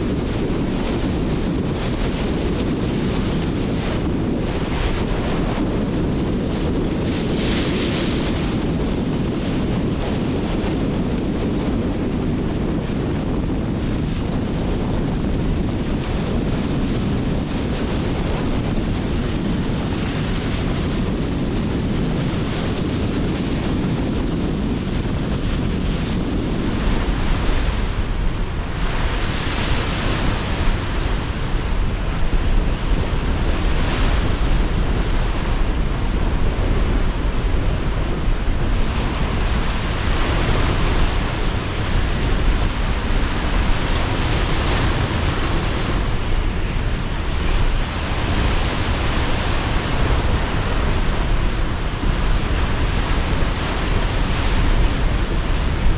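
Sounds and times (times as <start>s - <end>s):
wind buffeting microphone: 0.0s - 55.9s
waves breaking: 0.1s - 55.9s.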